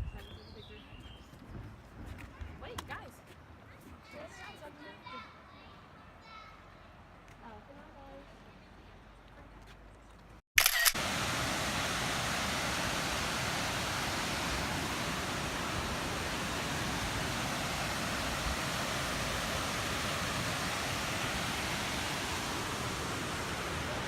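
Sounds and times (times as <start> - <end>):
rushing water: 10.7 - 24.0.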